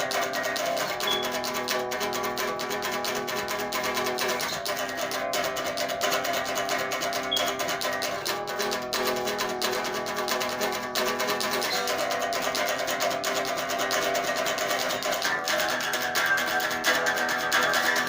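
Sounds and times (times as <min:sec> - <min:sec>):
acoustic guitar picked and strummed: 0:00.0 - 0:18.0.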